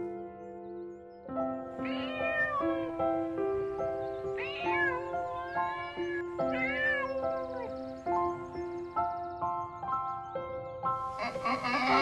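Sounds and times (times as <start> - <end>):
background music with held notes: 0.0 - 12.0
cat meowing: 1.8 - 3.4, 4.2 - 8.0.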